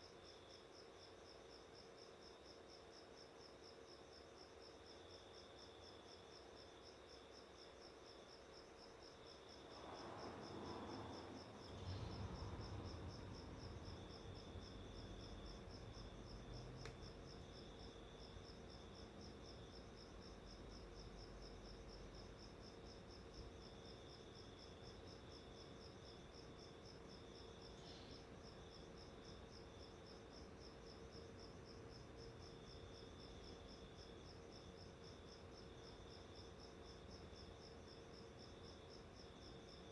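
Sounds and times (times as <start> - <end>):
cricket chirping: 0.0 - 39.9
soft low rumble: 9.8 - 17.3.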